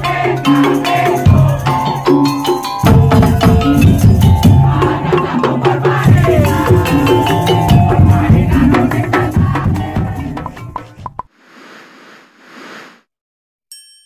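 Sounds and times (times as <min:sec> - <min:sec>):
bamboo and wooden drums: 0:00.3 - 0:11.3.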